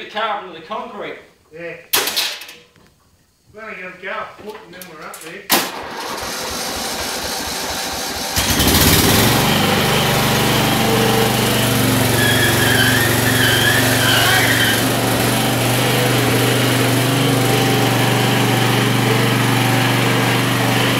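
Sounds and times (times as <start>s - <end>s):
riding mower engine running: 5.7s - 20.9s
wavering high squeal: 12.1s - 14.9s.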